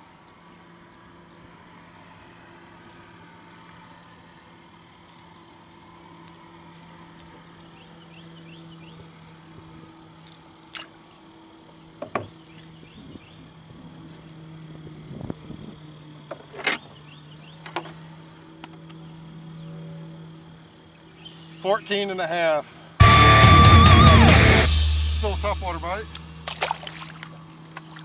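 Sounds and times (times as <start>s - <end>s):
low engine hum: 23.0s - 28.0s.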